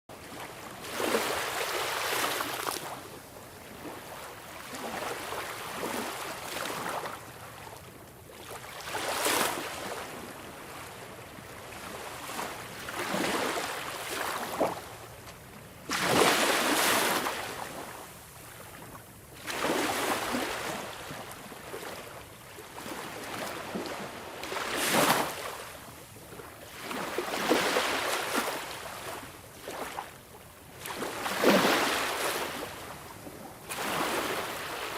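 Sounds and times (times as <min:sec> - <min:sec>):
sea waves breaking: 0:00.3 - 0:03.0, 0:08.4 - 0:15.0, 0:15.8 - 0:18.2, 0:19.4 - 0:22.0, 0:22.6 - 0:25.8, 0:26.7 - 0:30.1, 0:30.7 - 0:34.9.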